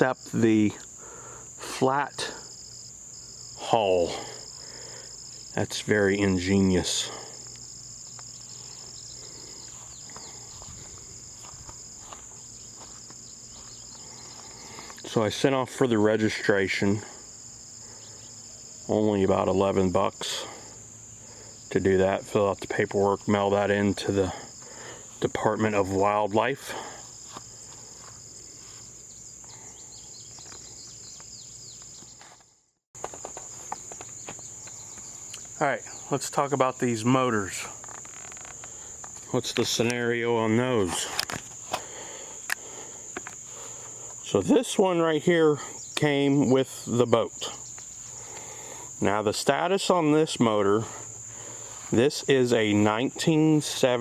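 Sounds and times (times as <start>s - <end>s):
insects singing: 0.0s - 54.0s
bird chirping: 8.0s - 10.8s, 28.8s - 32.4s.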